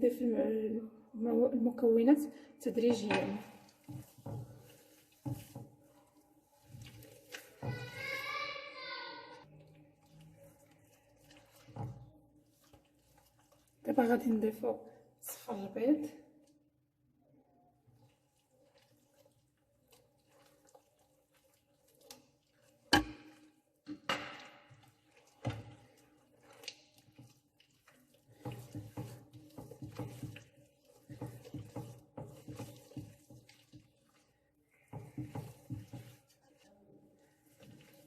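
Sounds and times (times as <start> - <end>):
beating eggs in a bowl: 1.8 - 16.8, 17.7 - 38.0
utensil knocking bowl: 2.8 - 5.7, 22.9 - 25.8, 28.3 - 33.9, 34.9 - 36.4.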